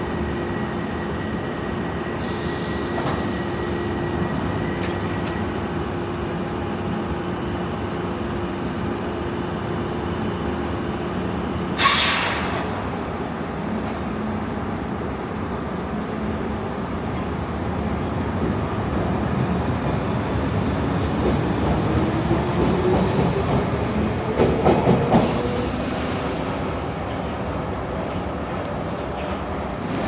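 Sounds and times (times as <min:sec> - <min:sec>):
underground train running hum: 0:00.0 - 0:30.0
compressed air hiss: 0:11.8 - 0:12.8.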